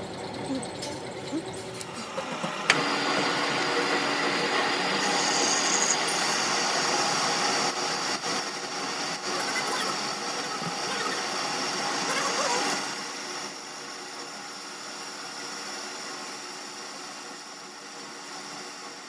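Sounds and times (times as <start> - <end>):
power tool grinding: 0.0 - 13.8.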